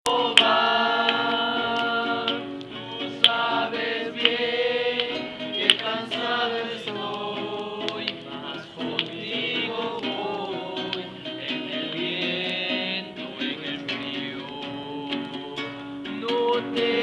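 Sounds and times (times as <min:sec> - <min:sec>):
group singing worship song: 0:00.1 - 0:17.0.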